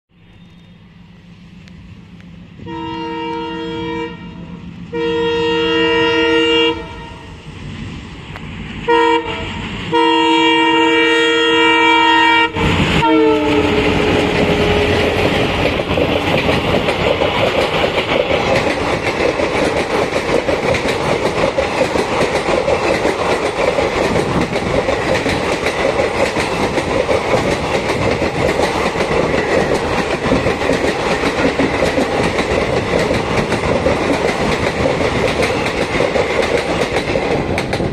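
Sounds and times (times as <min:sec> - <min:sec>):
locomotive horn blasts: 0:02.6 - 0:07.3, 0:08.9 - 0:15.2
train wheels clickety-clack: 0:12.7 - 0:37.9.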